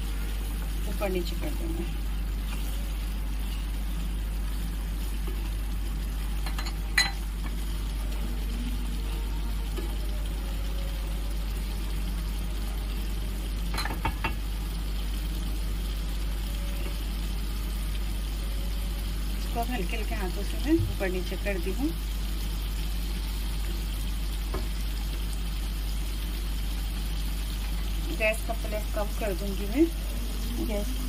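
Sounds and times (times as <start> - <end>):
food bubbling and sizzling: 0.0 - 31.0
steady low hum: 0.0 - 31.0
spatula knocking on pan: 13.7 - 14.5.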